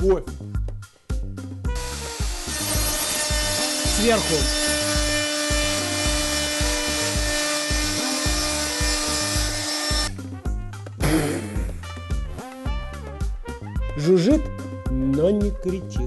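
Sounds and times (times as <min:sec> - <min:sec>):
electric router cutting wood: 0:01.8 - 0:10.2.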